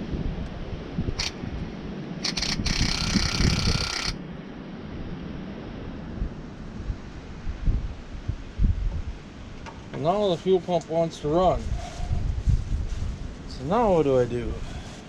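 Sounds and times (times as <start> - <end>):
electric fuel pump buzzing: 1.2 - 1.4, 2.2 - 4.2.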